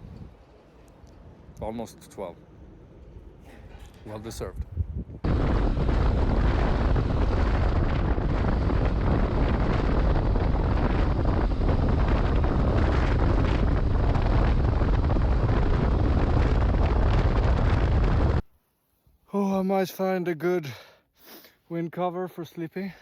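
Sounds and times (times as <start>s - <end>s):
wind noise on microphone: 0.0s - 1.9s, 2.9s - 18.5s.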